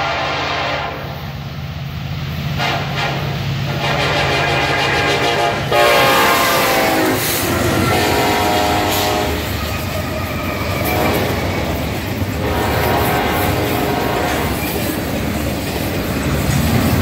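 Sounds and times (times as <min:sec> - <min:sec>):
train air horn: 0:00.0 - 0:01.2, 0:02.6 - 0:09.6, 0:10.8 - 0:11.5, 0:12.4 - 0:14.8
locomotive engines rumbling: 0:00.0 - 0:17.0
freight cars clattering on rails: 0:06.4 - 0:17.0.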